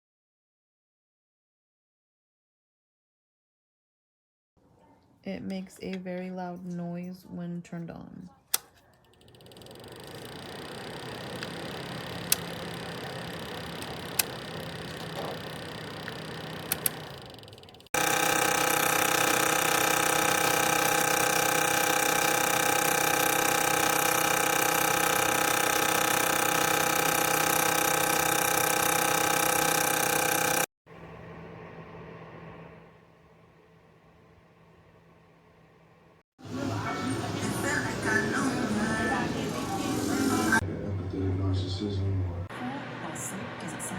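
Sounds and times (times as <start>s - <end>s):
fan heater whirring: 8.5s - 43.9s
loud whirring with held tones: 9.2s - 33.0s.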